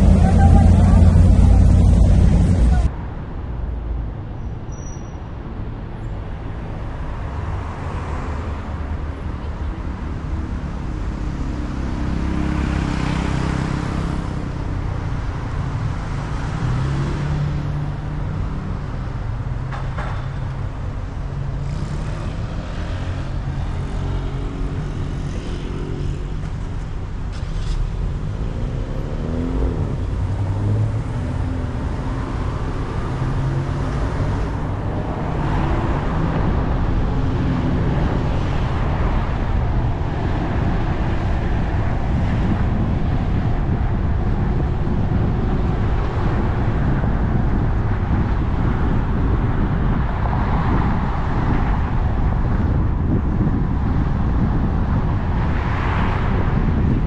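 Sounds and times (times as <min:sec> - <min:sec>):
engine revving past: 0:00.0 - 0:02.9
car engines rumbling: 0:00.0 - 0:57.0.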